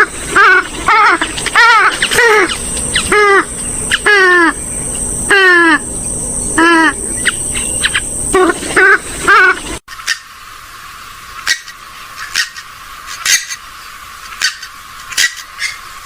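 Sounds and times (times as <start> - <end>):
waterbird loud calls: 0.0 - 5.8, 6.6 - 16.0
high insect-like whine: 0.0 - 16.0.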